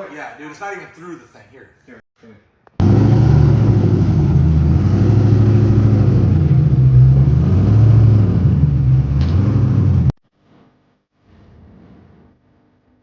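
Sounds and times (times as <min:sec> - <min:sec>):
car engine idling: 0:02.8 - 0:10.1.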